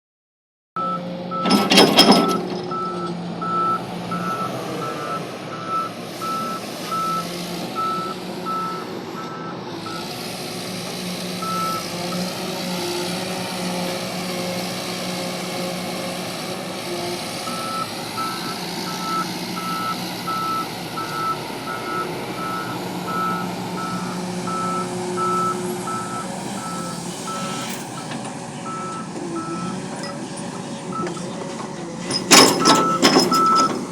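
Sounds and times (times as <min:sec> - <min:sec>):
diesel engines running: 0:00.8 - 0:33.9
backup alarm beeping: 0:28.7 - 0:31.4, 0:32.1 - 0:33.9.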